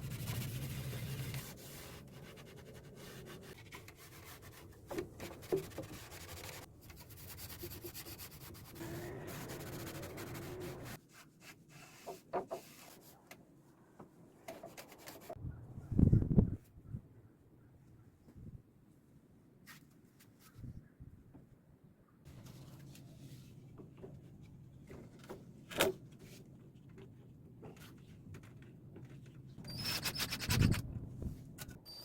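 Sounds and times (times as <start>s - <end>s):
hand sanding wood: 7.3s - 11.0s.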